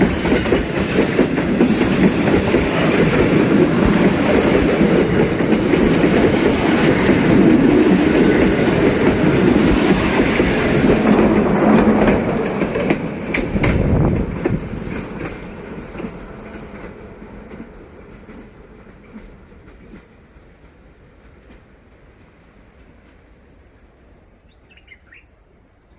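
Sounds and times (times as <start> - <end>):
wheels clacking over rail joints: 0.0 - 20.1
freight train rumbling past: 0.0 - 25.9.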